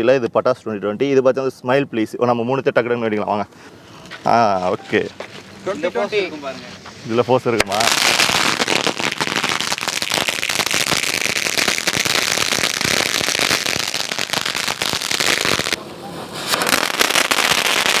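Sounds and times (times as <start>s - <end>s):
fireworks hissing: 3.6s - 18.0s
fireworks popping: 4.1s - 18.0s.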